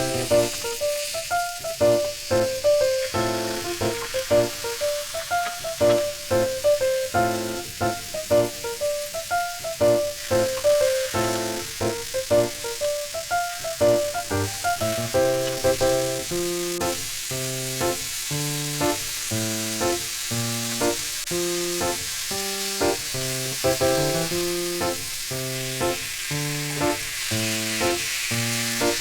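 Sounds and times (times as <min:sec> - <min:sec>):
background music: 0:00.0 - 0:16.8
food sizzling in a pan: 0:00.0 - 0:29.0.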